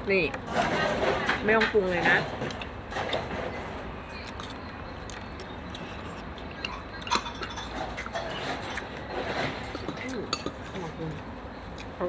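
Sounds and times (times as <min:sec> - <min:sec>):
low background noise: 0:00.0 - 0:12.0
cutlery clinking against bowl: 0:06.0 - 0:11.1.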